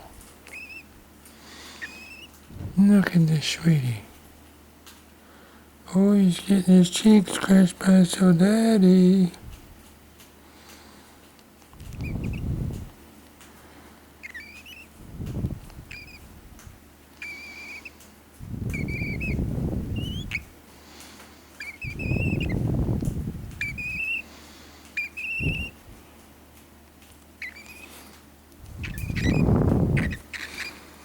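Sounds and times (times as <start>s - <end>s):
bird whistling chirpy notes: 0.5s - 0.9s, 12.0s - 12.6s, 14.2s - 14.9s, 15.9s - 16.3s, 17.2s - 17.9s, 18.6s - 20.5s, 21.6s - 22.7s, 23.6s - 24.3s, 25.0s - 25.8s, 27.4s - 28.0s, 28.7s - 30.8s.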